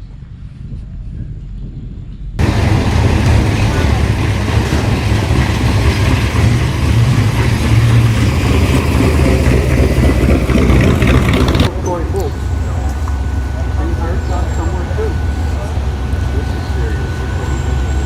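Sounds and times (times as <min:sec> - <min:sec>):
car engine rumbling: 0:02.2 - 0:18.0
background voices: 0:02.4 - 0:08.4.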